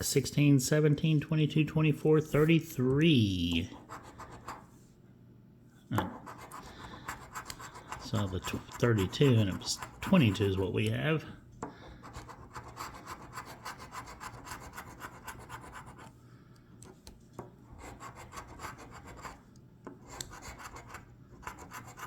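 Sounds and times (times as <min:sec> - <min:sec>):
lottery ticket being scratched: 0:06.1 - 0:10.9, 0:12.1 - 0:16.1.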